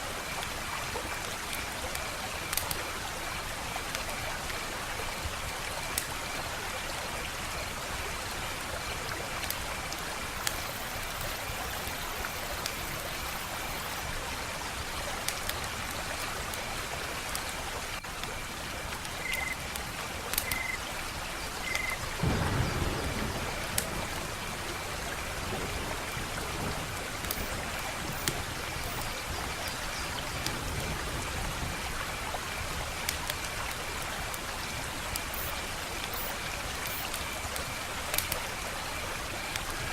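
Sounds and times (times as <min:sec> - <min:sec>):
fire popping and snapping: 0:01.9 - 0:02.8, 0:21.7 - 0:25.4, 0:26.0 - 0:29.8, 0:35.1 - 0:38.5
wood fire crackling: 0:01.9 - 0:02.8, 0:09.4 - 0:14.0, 0:21.7 - 0:30.7, 0:35.1 - 0:38.5.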